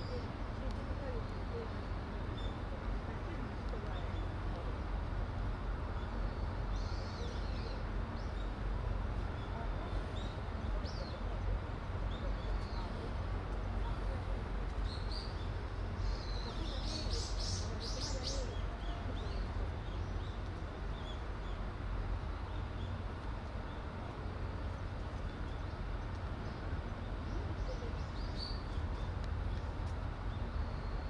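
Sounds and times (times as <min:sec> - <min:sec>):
small birds chirping: 0:09.3 - 0:24.0, 0:24.6 - 0:31.0.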